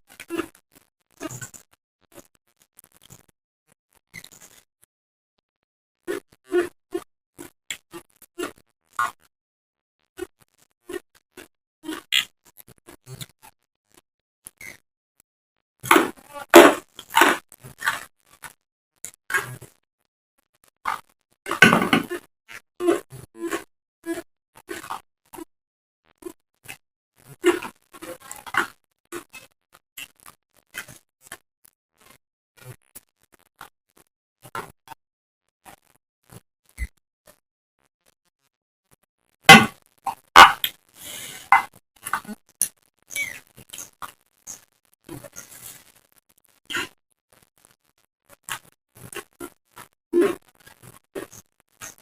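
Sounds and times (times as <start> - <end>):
mouth clicks: 39.5 - 42.4
person chewing crunchy vegetables: 40.3 - 42.4.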